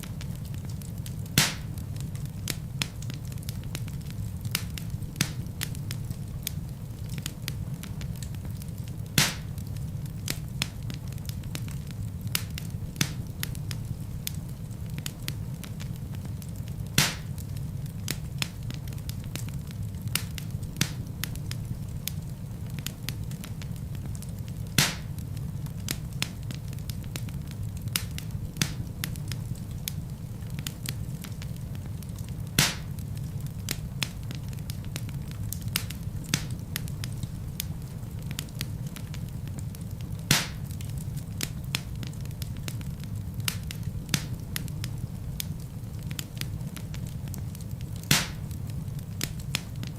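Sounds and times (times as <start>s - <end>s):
fire crackling and popping: 0.0s - 49.9s
low rumble of flames: 0.0s - 49.9s.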